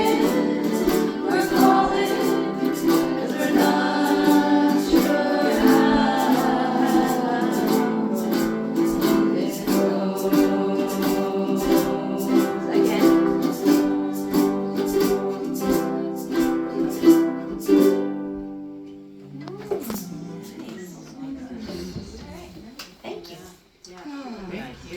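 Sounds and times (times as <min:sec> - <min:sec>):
group of voices singing: 0:00.0 - 0:17.7
strummed ukuleles: 0:00.0 - 0:20.6.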